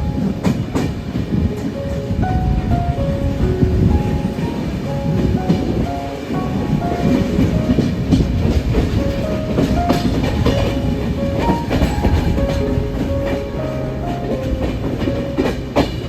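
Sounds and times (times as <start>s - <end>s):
passenger train rumbling: 0.0s - 16.0s
wheels clicking over rail joints: 3.7s - 16.0s.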